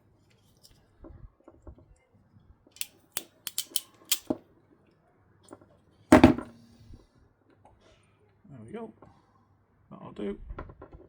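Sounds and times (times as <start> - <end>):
hand tools snipping and clicking: 2.8 - 4.4
handling noise: 6.1 - 6.7.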